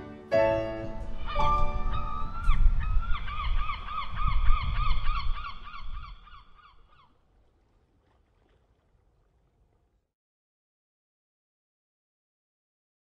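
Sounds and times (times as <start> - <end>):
low wind rumble: 0.4 - 10.1.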